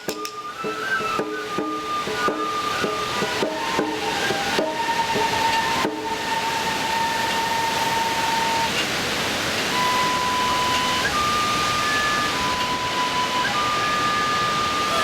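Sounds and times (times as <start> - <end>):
drum strike: 0.0 - 5.0
flute long notes: 0.0 - 15.0.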